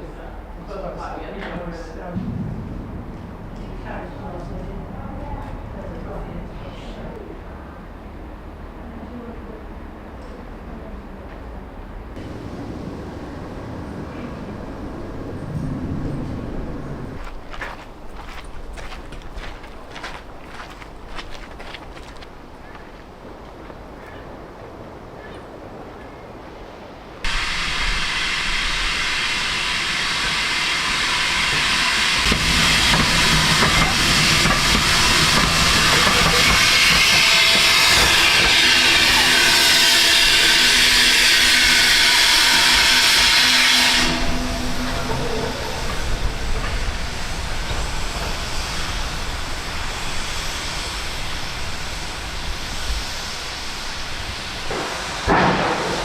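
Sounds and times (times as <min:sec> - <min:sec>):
low rumble: 0:00.0 - 0:21.6, 0:27.2 - 0:56.0
steam hissing: 0:27.2 - 0:56.0.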